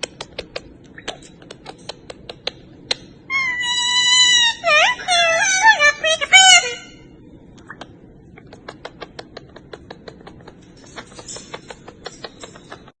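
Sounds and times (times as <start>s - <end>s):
parrot beaks clicking: 0.0s - 3.1s.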